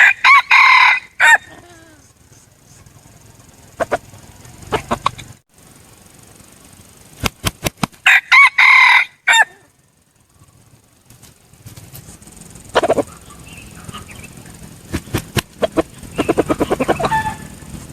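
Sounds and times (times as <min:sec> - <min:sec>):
rooster crowing: 0:00.0 - 0:02.0, 0:08.0 - 0:09.8, 0:15.7 - 0:17.7
soft clucks: 0:03.7 - 0:05.4, 0:12.7 - 0:17.8
sharp clicks: 0:07.1 - 0:08.0.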